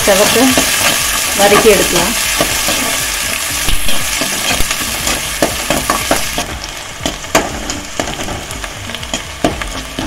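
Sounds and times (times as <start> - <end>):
onion sizzling in hot oil: 0.0 - 10.0.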